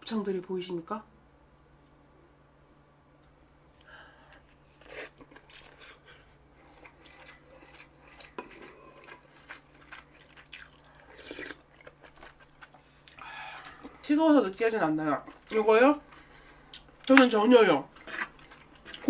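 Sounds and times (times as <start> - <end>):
chewing and wet mouth sounds: 3.8 - 19.0.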